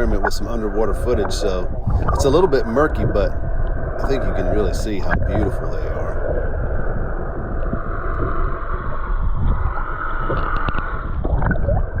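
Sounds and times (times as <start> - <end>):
muffled rumble of water and boat: 0.0 - 12.0
faint clicks: 7.6 - 11.7.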